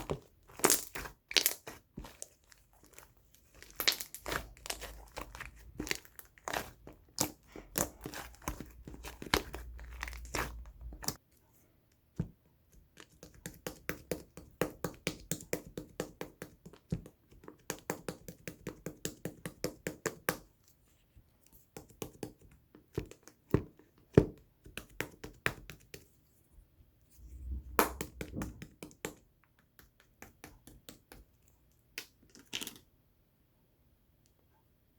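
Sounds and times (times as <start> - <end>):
slime being squished: 0.0 - 11.2, 27.3 - 28.8.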